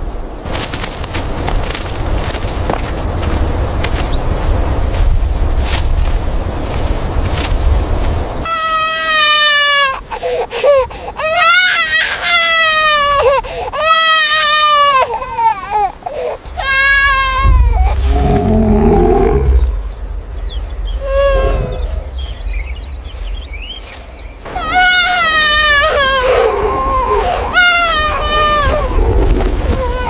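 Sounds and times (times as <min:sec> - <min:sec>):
child wailing: 0:08.5 - 0:10.0, 0:10.6 - 0:15.9, 0:16.5 - 0:19.6, 0:21.0 - 0:22.0, 0:24.5 - 0:30.0
low growl: 0:16.5 - 0:20.0, 0:20.9 - 0:22.7
child whimpering: 0:24.5 - 0:29.0, 0:29.6 - 0:30.0.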